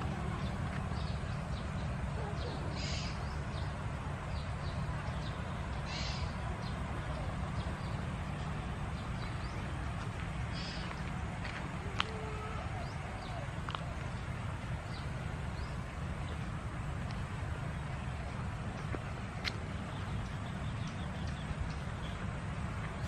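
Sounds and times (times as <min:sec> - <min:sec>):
birds calling: 0:00.0 - 0:08.1, 0:10.5 - 0:11.1
steady low rumble: 0:00.0 - 0:23.0.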